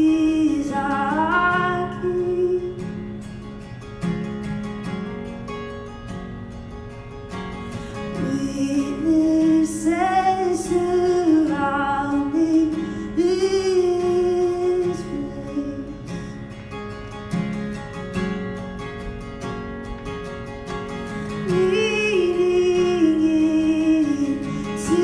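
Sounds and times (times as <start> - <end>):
woman singing: 0.0 - 3.2, 8.0 - 16.3, 21.3 - 25.0
plucked acoustic guitar: 0.0 - 25.0.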